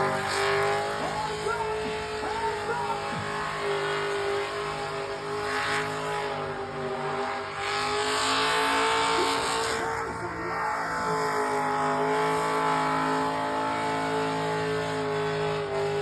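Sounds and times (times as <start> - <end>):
tyres spinning: 0.0 - 5.2
car engine at steady revs: 0.0 - 16.0.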